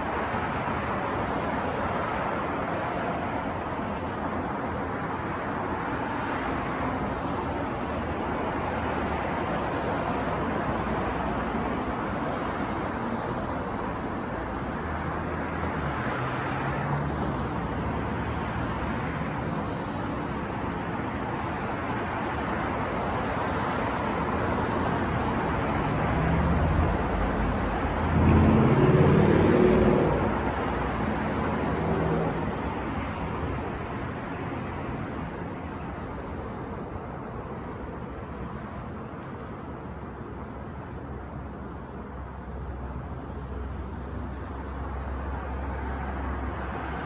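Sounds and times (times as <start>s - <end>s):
passing cars: 0.0s - 47.0s
vehicle engine passing close: 26.1s - 32.6s.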